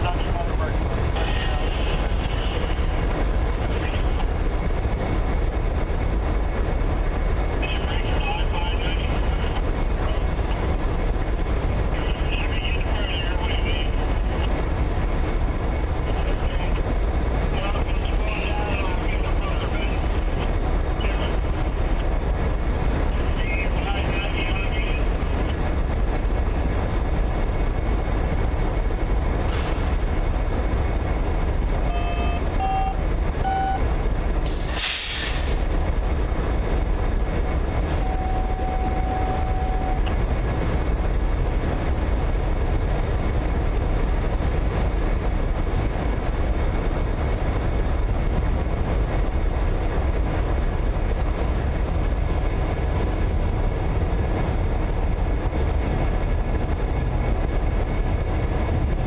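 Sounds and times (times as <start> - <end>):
diesel locomotives rumbling: 0.0 - 59.0
brief electronic beeps: 31.9 - 33.8, 38.0 - 40.1
short hiss: 34.5 - 35.6.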